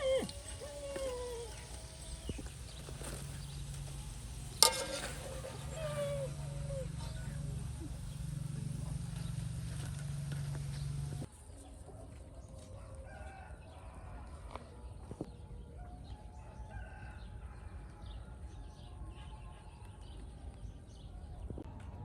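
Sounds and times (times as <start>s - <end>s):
birds calling: 0.0s - 11.3s
steady low hum: 0.0s - 11.3s.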